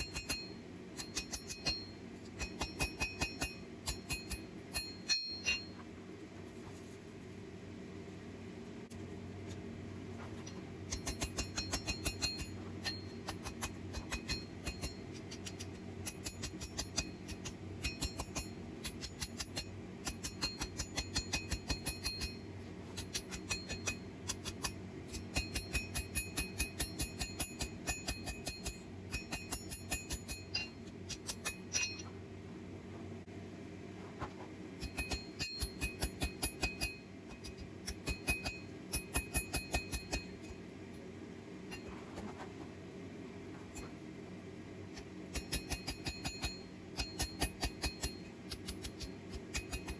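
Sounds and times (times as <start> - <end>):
hammer striking steel on anvil: 0.0 - 5.8, 10.9 - 22.4, 23.0 - 32.1, 34.8 - 40.6, 45.3 - 49.9
forge blower humming: 0.0 - 49.9.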